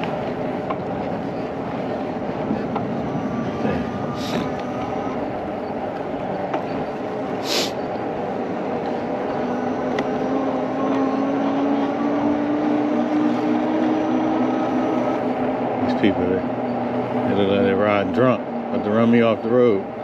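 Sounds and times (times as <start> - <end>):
low motor hum: 0.0 - 20.0
short hisses: 7.4 - 7.8.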